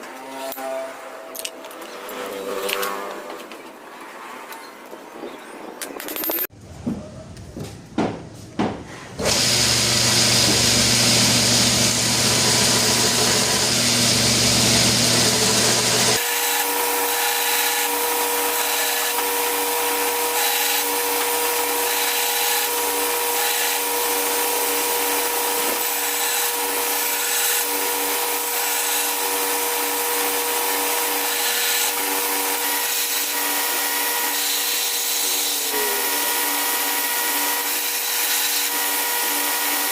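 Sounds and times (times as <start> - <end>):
power tool running: 9.2 - 39.9.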